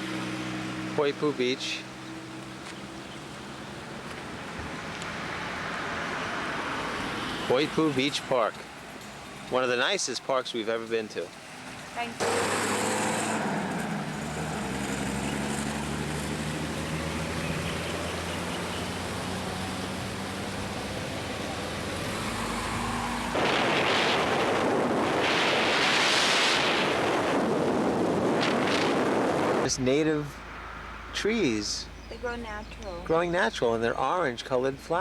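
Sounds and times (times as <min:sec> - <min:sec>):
road noise: 0:00.0 - 0:35.0
low engine hum: 0:11.7 - 0:25.7
wind on microphone: 0:23.3 - 0:29.7.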